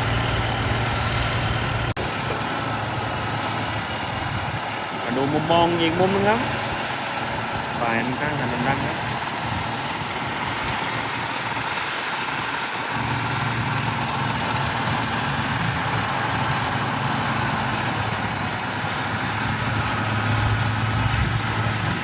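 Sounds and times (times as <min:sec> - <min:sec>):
diesel engine drone: 0:00.0 - 0:22.0.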